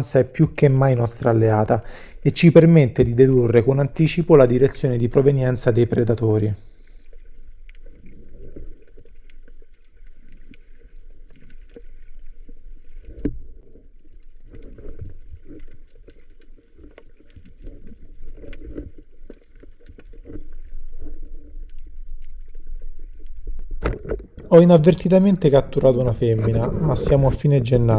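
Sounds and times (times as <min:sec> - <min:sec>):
muffled underwater sloshing and bubbling: 0:00.0 - 0:27.9
small underwater clicks: 0:06.0 - 0:24.5.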